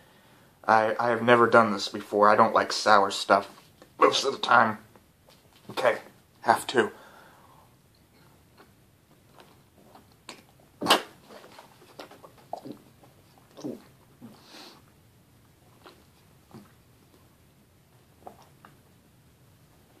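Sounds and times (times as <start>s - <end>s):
wet mouth sounds: 8.4s - 14.4s, 18.1s - 18.9s
person biting and chewing: 15.6s - 16.8s.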